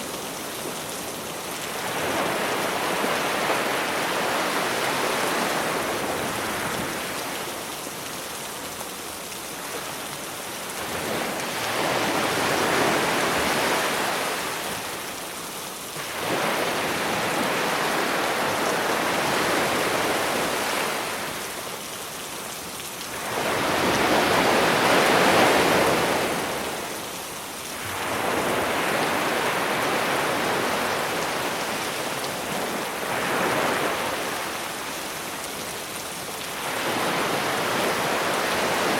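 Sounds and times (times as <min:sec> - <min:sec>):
rain hiss: 0:00.0 - 0:38.9
sea waves washing ashore: 0:00.0 - 0:38.9.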